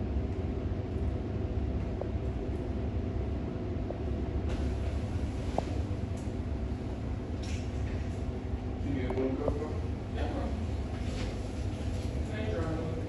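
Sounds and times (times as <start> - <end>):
steady tonal hum: 0.0 - 13.0.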